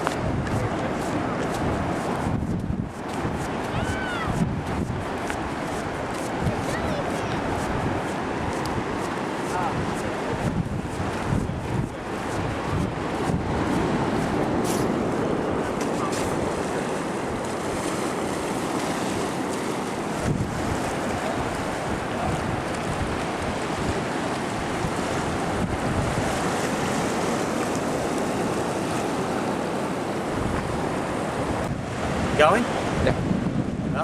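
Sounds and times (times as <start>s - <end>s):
wind blowing across microphone: 0.0s - 34.0s.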